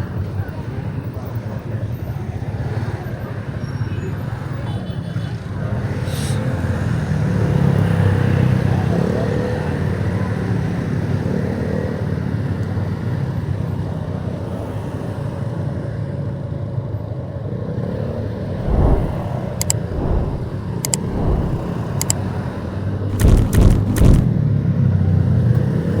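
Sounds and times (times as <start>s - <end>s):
road and wind noise: 18.4s - 22.5s
deep low thumps: 18.6s - 22.1s, 23.1s - 24.3s
sharp clicks: 18.6s - 22.2s, 23.1s - 24.3s.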